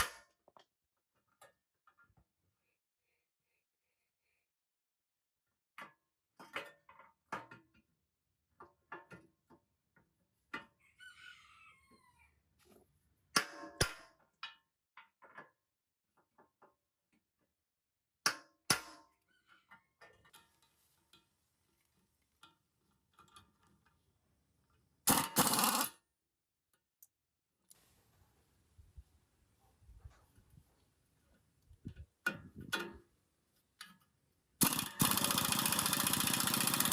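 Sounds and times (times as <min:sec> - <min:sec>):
rooster crowing: 0:10.8 - 0:12.3.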